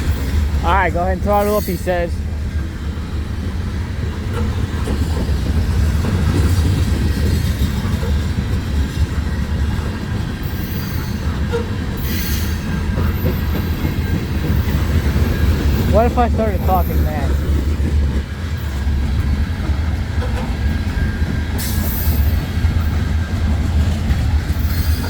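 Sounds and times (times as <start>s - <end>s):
freight train wheels rumbling: 0.0s - 25.0s
wheels squealing: 4.2s - 19.0s, 20.1s - 25.0s.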